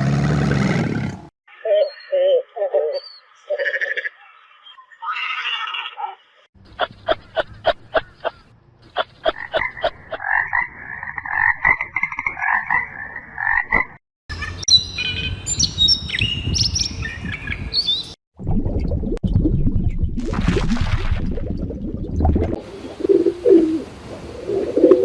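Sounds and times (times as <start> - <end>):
frogs croaking: 1.5 - 13.9
birdsong with sliding whistles: 14.4 - 18.2.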